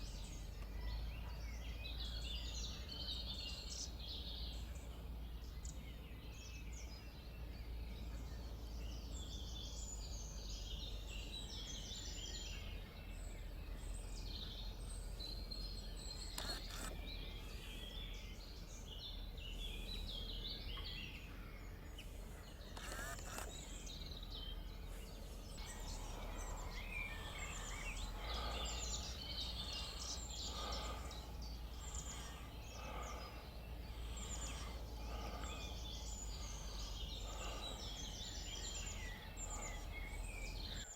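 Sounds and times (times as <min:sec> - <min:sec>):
songbirds chirping and trilling: 0:00.0 - 0:40.9
steady low hum: 0:00.0 - 0:40.9
lower repeating bird call: 0:25.6 - 0:40.9.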